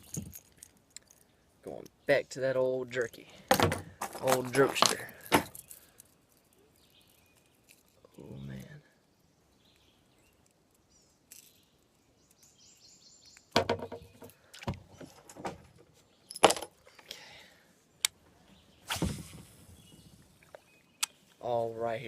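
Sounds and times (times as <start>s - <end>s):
fishing gear knocking and clattering: 0.0s - 1.3s, 3.5s - 6.5s, 13.6s - 17.1s.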